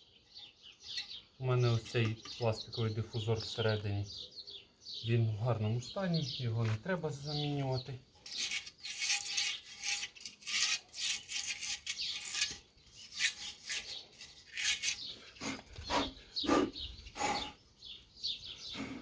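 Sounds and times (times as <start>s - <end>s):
pump parts scraping: 7.5s - 15.5s.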